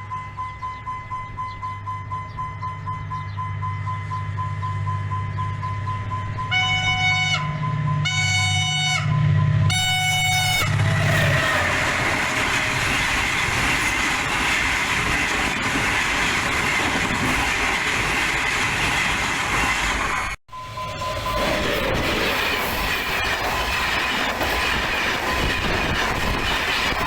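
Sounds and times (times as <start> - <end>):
locomotive horn blasts: 6.4 - 12.1
train wheels on rails: 9.4 - 27.0.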